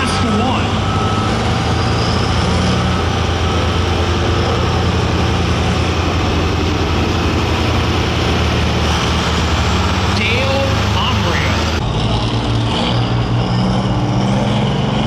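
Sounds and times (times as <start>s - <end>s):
tractor engine running loud and deep: 0.0s - 15.0s.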